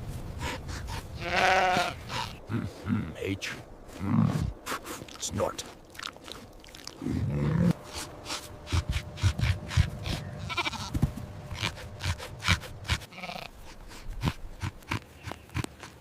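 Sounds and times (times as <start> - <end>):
sheep bleating: 1.2 - 2.4, 10.0 - 12.2, 12.9 - 13.5.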